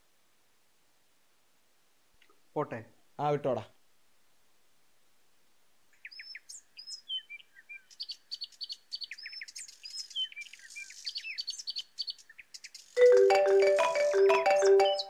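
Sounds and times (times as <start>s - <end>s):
birds chirping and twittering: 6.0s - 15.0s.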